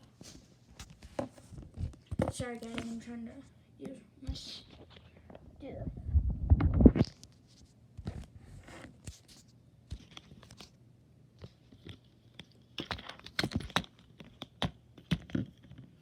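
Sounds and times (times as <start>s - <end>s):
small objects clicking and rustling: 11.4s - 16.0s.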